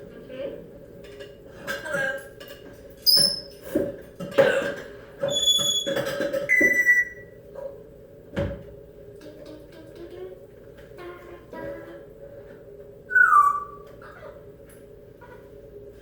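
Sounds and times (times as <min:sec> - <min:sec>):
parrot calling: 0:13.1 - 0:14.5.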